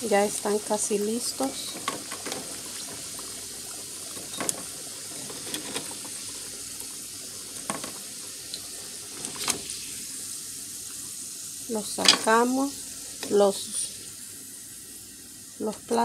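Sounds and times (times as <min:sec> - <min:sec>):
plantain sizzling in hot oil: 0:00.0 - 0:16.0.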